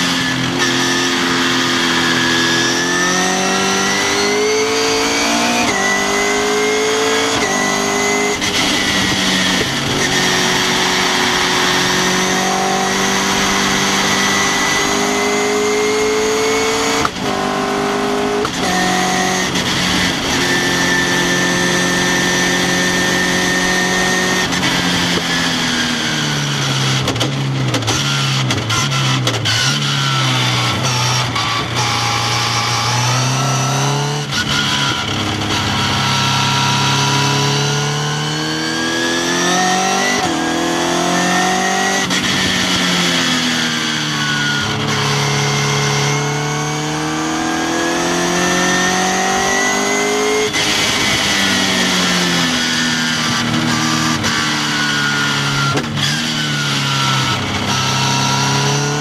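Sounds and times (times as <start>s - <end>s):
sports car engine at full throttle: 0.0s - 59.0s.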